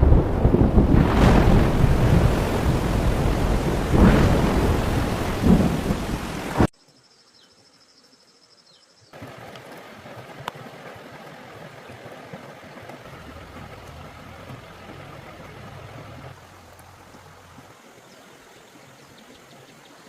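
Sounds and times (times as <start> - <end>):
heavy rain: 0.0 - 6.7, 12.9 - 17.9
rolling thunder: 0.0 - 6.7.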